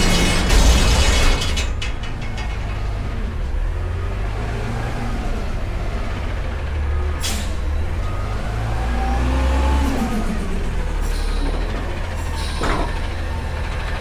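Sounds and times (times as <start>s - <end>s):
diesel truck engine revving: 3.0s - 14.0s.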